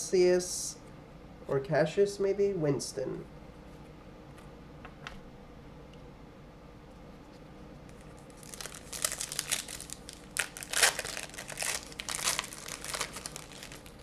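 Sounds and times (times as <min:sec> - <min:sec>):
plastic wrapper tearing and crinkling: 0:07.9 - 0:14.0.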